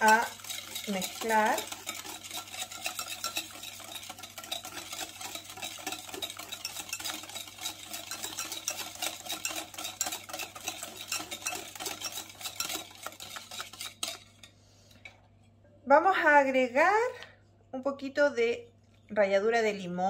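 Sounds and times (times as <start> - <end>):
whisk ticking against glass bowl: 0.0 - 14.3.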